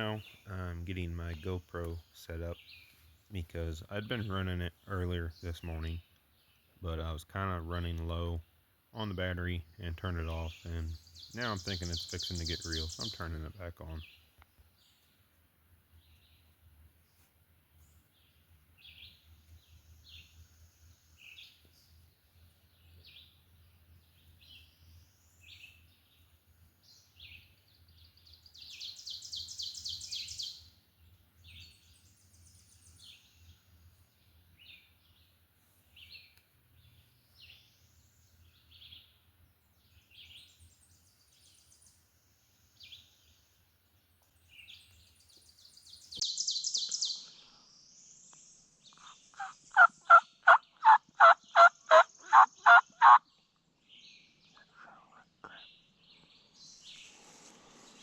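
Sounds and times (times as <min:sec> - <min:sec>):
bird chirping: 0:00.0 - 0:58.0
bird trilling: 0:49.0 - 0:53.2.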